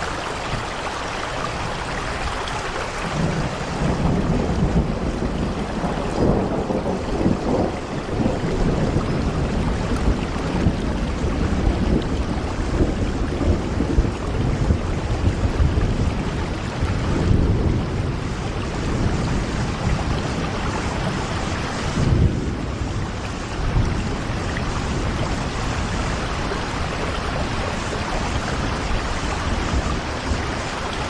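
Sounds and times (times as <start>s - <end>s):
rain against a window: 0.0s - 31.0s.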